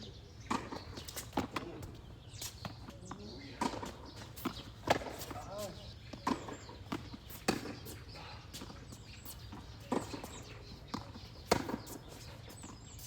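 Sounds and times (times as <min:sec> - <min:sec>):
tennis ball struck by rackets: 0:03.6 - 0:05.3, 0:06.2 - 0:07.8, 0:09.9 - 0:12.0.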